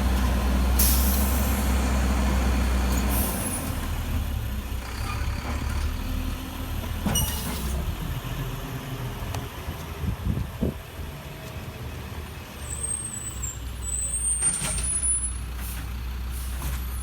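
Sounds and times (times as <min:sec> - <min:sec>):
truck engine droning: 0:00.0 - 0:09.8.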